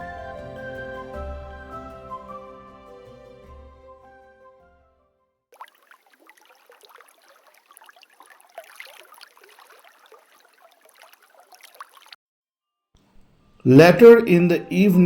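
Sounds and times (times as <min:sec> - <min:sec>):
river water babbling over rocks: 0:05.6 - 0:12.1.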